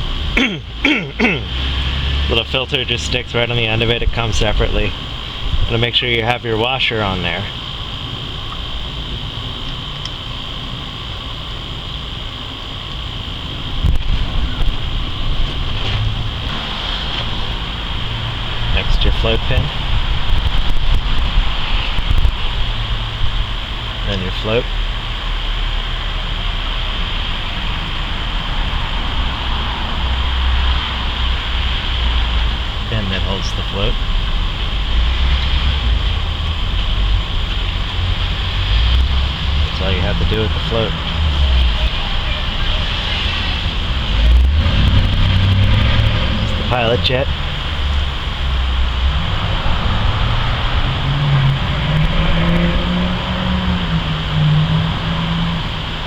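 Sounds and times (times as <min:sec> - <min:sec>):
constant background noise: 0:00.0 - 0:56.0
low motor drone: 0:00.0 - 0:56.0
low rumbling: 0:00.0 - 0:56.0
even hiss: 0:12.6 - 0:56.0.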